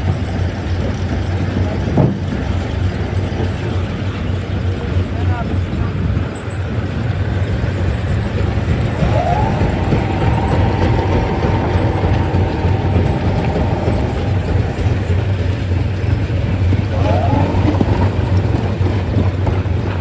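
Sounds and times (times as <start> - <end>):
machine whine: 7.8 - 20.0
stone crusher machinery rumbling: 7.8 - 20.0.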